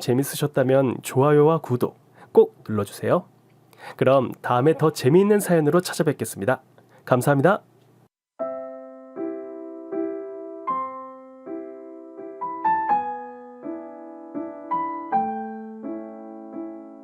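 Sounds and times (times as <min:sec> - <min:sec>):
soft electric piano chords: 0:08.4 - 0:17.0.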